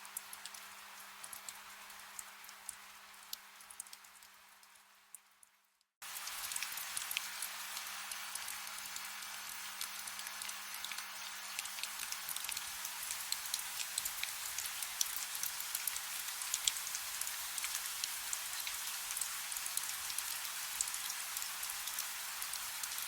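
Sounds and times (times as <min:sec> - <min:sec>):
soft rain hiss: 0:00.0 - 0:23.0
raindrop ticks: 0:00.1 - 0:01.6.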